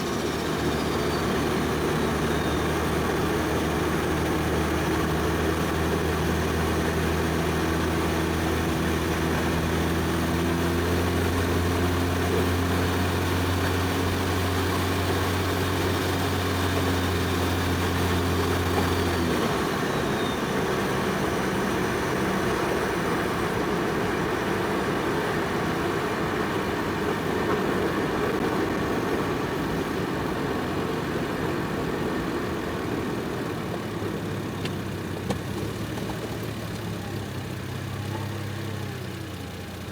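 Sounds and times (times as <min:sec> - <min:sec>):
tyre and road noise: 0:00.0 - 0:39.8
car engine droning: 0:00.0 - 0:39.9.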